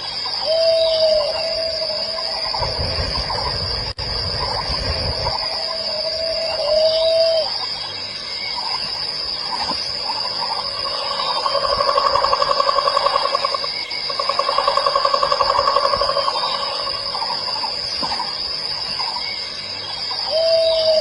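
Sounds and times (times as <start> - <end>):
insect chorus drone: 0.0 - 21.0
fast pulsing animal call: 10.1 - 17.8.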